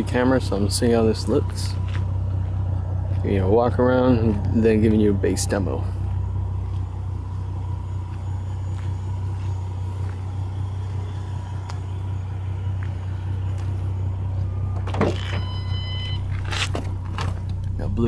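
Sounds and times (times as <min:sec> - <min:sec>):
car engine idling: 0:00.0 - 0:18.0
high electronic tone: 0:04.1 - 0:16.7
car door clicking: 0:14.7 - 0:17.8.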